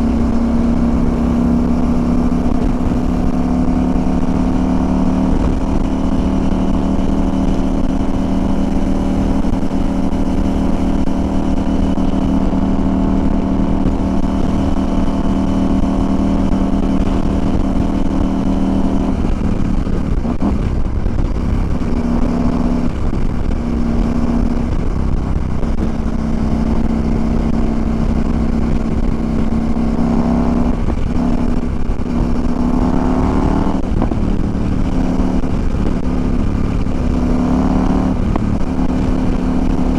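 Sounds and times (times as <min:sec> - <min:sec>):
motorcycle engine cruising: 0:00.0 - 0:39.9
wind rushing: 0:09.3 - 0:39.9.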